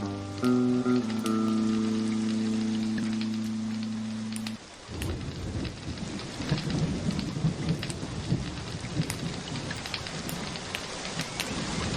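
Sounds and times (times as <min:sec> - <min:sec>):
held music chord: 0:00.0 - 0:04.6
wood fire crackling and popping: 0:00.0 - 0:11.9.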